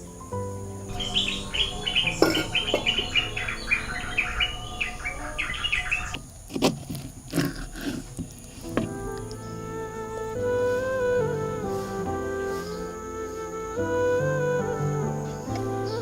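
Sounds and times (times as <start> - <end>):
small songbird chirping: 0.0 - 16.0.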